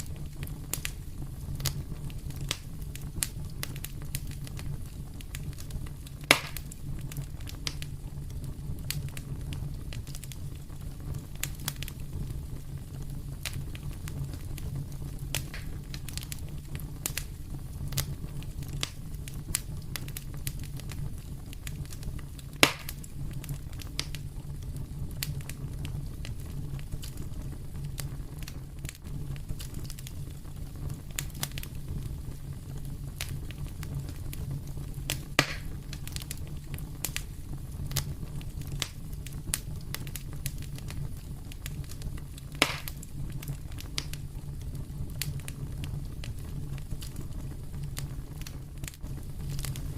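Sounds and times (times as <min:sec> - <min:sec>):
fireplace fire crackling: 0:00.0 - 0:49.9
low steady rumble: 0:00.0 - 0:49.9.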